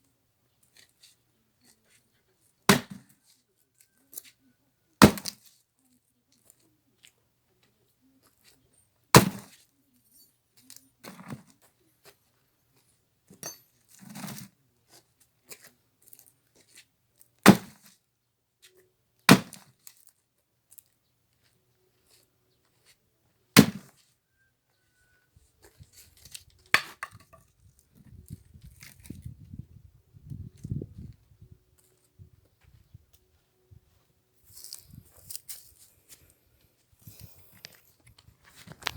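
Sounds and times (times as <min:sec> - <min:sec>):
axe chopping wood: 0:02.7 - 0:03.1, 0:05.0 - 0:05.4, 0:09.2 - 0:09.5, 0:17.4 - 0:17.8, 0:19.3 - 0:19.7, 0:23.6 - 0:23.9, 0:26.8 - 0:27.4
wood knocking: 0:26.8 - 0:27.4.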